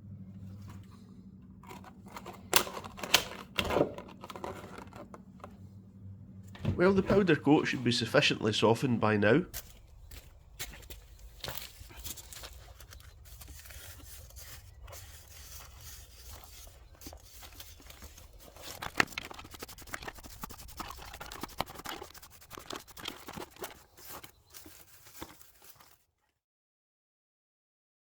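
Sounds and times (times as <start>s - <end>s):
scraping coating off metal: 13.2s - 25.2s.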